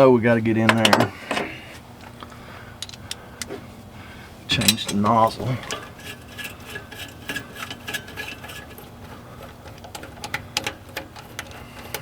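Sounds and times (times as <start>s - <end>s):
hand tools tapping on metal: 0.7s - 1.6s, 2.8s - 3.5s, 4.5s - 12.0s.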